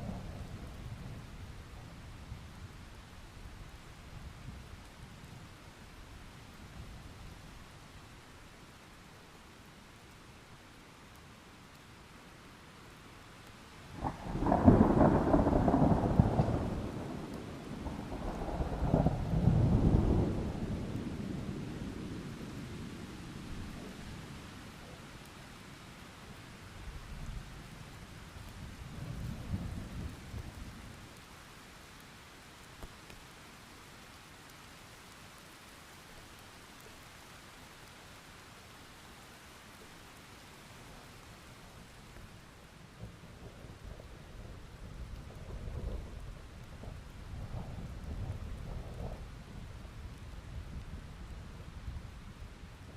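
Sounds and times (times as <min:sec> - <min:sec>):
thunder crack and rolling rumble: 0:00.0 - 0:02.9, 0:14.0 - 0:24.6, 0:27.1 - 0:31.1, 0:42.9 - 0:52.9
steady rain: 0:00.0 - 0:52.9.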